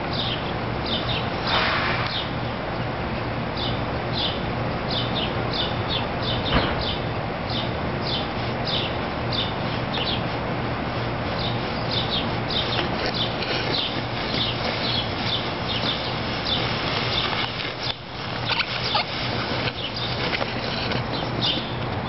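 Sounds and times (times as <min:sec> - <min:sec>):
sharp knock: 0:06.5 - 0:07.0
bird chirping: 0:11.4 - 0:19.1.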